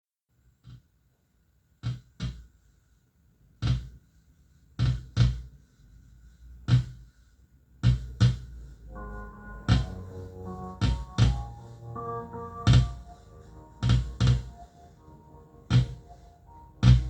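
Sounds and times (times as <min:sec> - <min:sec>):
electronic drum hits: 0:08.0 - 0:17.0.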